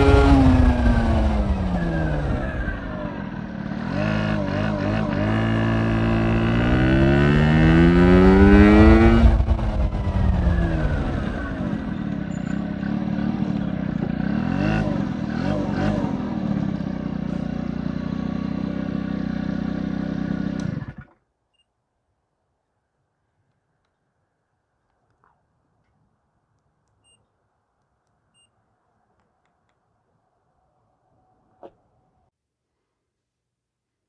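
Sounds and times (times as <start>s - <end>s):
scooter engine revving: 0.0s - 21.2s.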